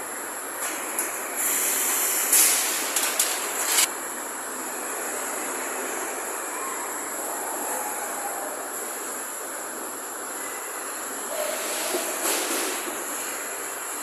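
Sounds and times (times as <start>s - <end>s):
shop machinery hum: 0.0s - 14.0s
welding arc hissing and crackling: 1.4s - 3.9s.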